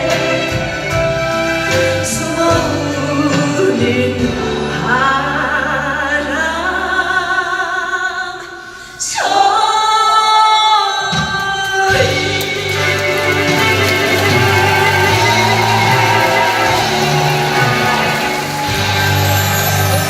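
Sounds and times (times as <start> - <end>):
backing track music: 0.0 - 7.1, 11.1 - 20.0
woman singing a ballad: 1.8 - 13.6.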